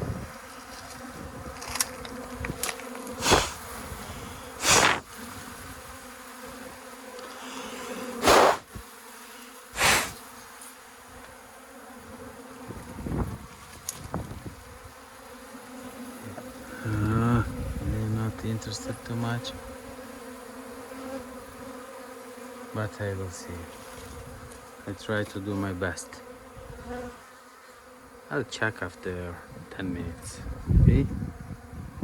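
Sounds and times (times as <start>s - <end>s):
bee swarm buzzing: 0.0s - 32.0s
puffs of air blown: 3.2s - 5.1s, 7.2s - 8.7s, 9.3s - 10.3s.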